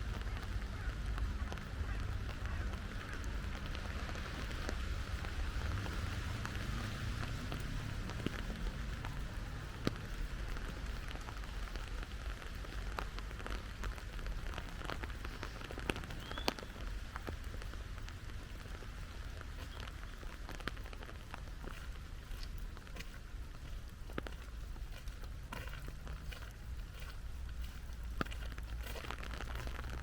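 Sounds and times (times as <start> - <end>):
rain drops ticking: 0.0 - 30.0.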